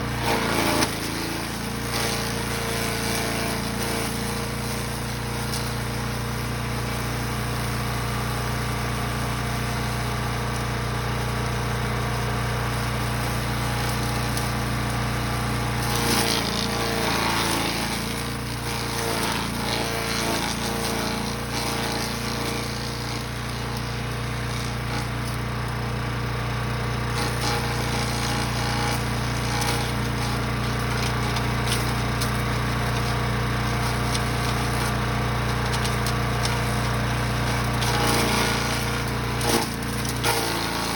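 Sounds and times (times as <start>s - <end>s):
chipper crunching and shredding: 0.0s - 40.9s
wood chipper engine running: 0.0s - 40.9s.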